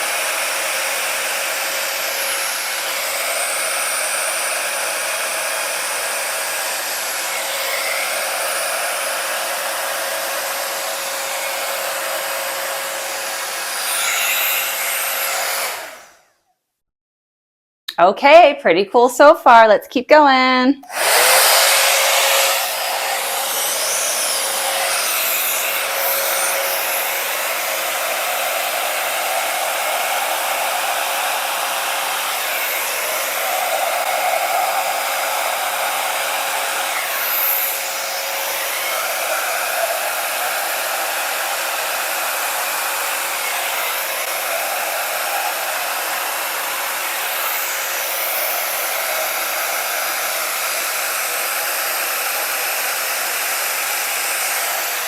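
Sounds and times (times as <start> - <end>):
blow dryer running: 0.0 - 16.3, 20.6 - 55.0.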